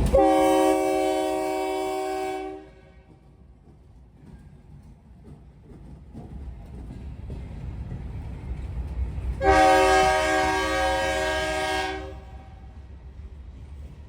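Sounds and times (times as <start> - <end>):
freight train rumble: 0.0 - 14.0
locomotive air horn blast: 0.1 - 3.1, 9.4 - 12.7.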